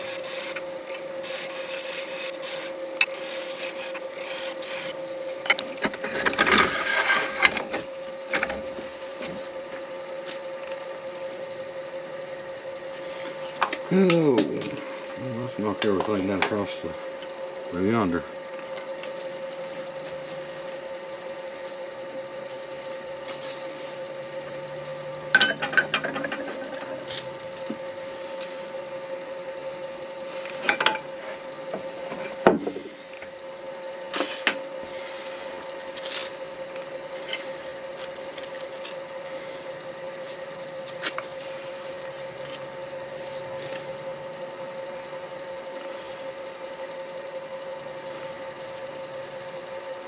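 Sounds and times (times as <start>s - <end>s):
turning tool scraping: 0.0s - 7.7s
lathe motor hum: 0.0s - 50.0s.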